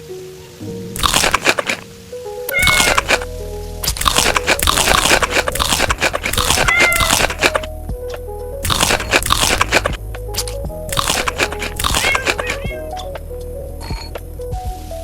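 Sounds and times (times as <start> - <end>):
light plucked background music: 0.0 - 15.0
crunching and chewing food: 1.0 - 1.9, 2.5 - 7.7, 8.6 - 12.9.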